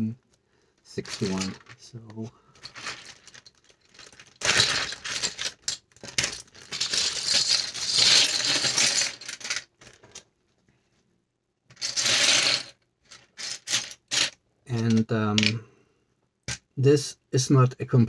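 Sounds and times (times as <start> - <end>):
plastic bricks clattering: 1.0 - 10.2, 11.7 - 15.6.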